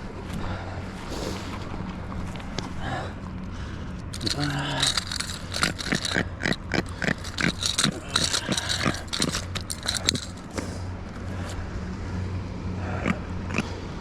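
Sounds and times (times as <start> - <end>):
fish croaking: 5.6 - 9.7.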